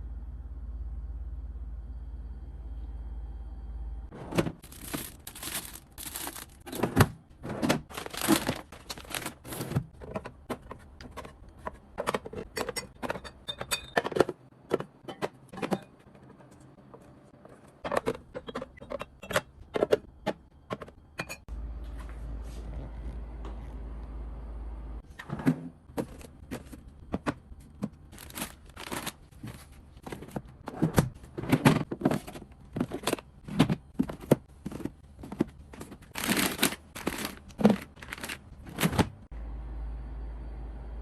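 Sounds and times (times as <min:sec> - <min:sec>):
low steady hum: 0:00.0 - 0:41.0
items clicking and knocking: 0:04.2 - 0:21.4, 0:25.4 - 0:39.2
plastic packaging rustling: 0:04.5 - 0:07.0, 0:07.8 - 0:09.9, 0:28.0 - 0:30.5, 0:31.9 - 0:39.2.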